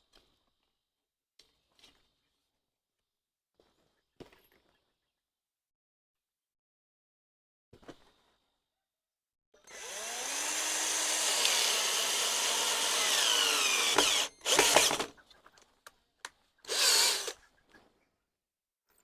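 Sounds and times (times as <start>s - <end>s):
handheld power tool running: 9.7s - 15.1s, 16.7s - 17.4s.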